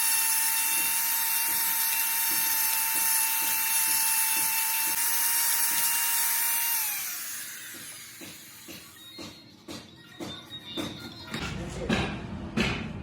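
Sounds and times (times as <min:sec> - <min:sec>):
power tool motor running: 0:00.0 - 0:09.4.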